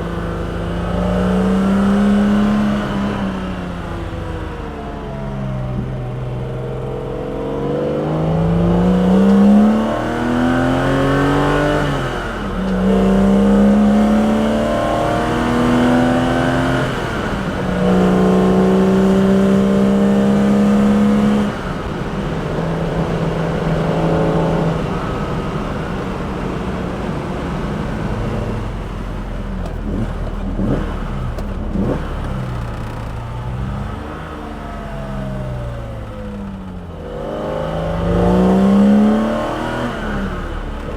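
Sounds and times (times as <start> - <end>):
car engine revving: 0.0 - 40.9
exhaust cracks: 15.3 - 40.9.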